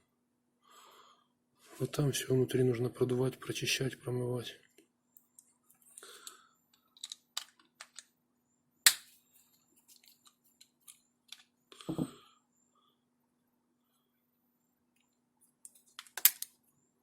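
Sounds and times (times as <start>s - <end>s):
small parts and tools clicking: 5.2s - 8.1s.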